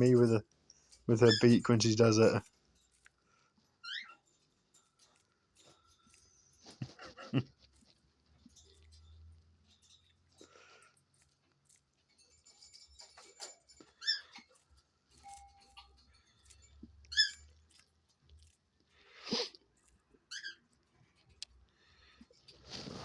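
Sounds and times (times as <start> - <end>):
brief rustle: 22.4 - 23.0.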